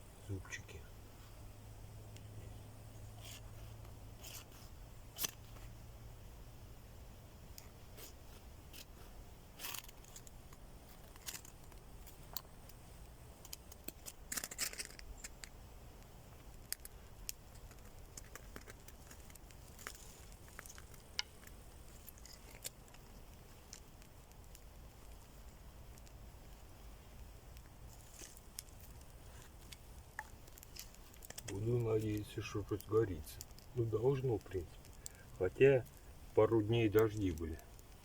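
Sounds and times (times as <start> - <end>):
wood and kindling clicks and scrapes: 7.5 - 12.8, 13.4 - 15.5, 16.4 - 25.3, 27.6 - 36.0.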